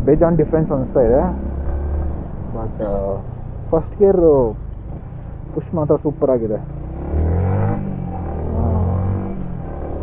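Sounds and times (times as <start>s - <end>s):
motorcycle engine accelerating: 0.3s - 3.8s, 6.7s - 10.0s.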